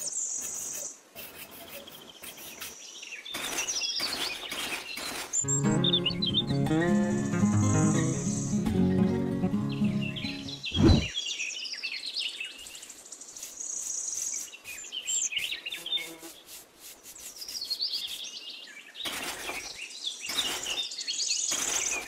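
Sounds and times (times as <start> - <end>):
scratchy brushing noise: 0.0 - 2.8, 13.4 - 18.3
small birds chirping: 0.0 - 22.0.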